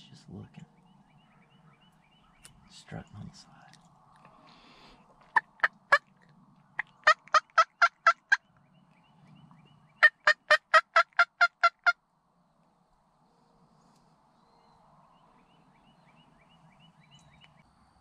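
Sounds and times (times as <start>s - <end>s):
turkey yelping: 6.8s - 8.4s, 10.0s - 12.0s.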